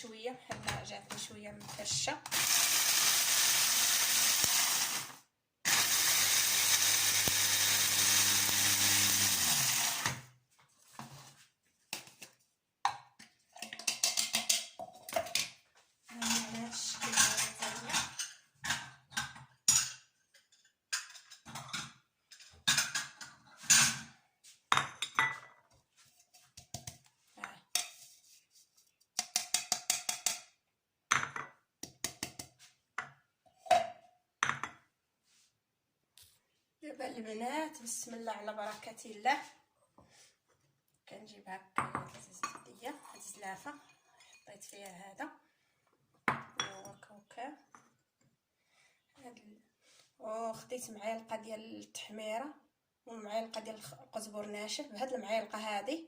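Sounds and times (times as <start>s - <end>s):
electric grinder grinding peppers: 2.3s - 10.2s
dishes and utensils clattering: 16.2s - 24.1s.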